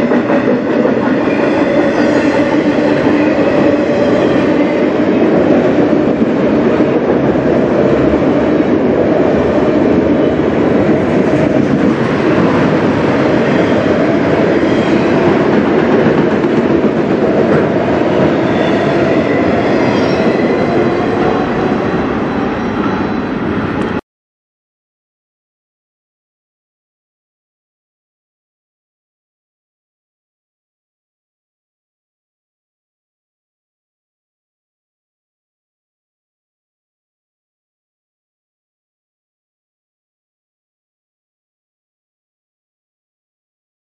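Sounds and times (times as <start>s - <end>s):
steel wheels running on rail: 0.0s - 24.0s.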